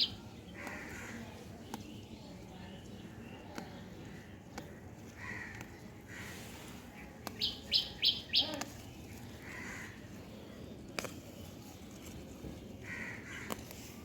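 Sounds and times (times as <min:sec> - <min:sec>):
bird calling: 0:07.2 - 0:10.0.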